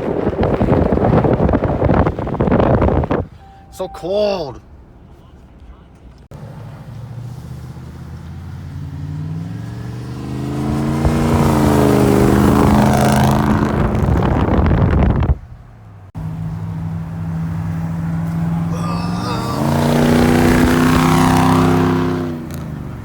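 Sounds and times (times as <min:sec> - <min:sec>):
lower engine note: 0:06.3 - 0:23.0
truck engine revving: 0:06.3 - 0:23.0.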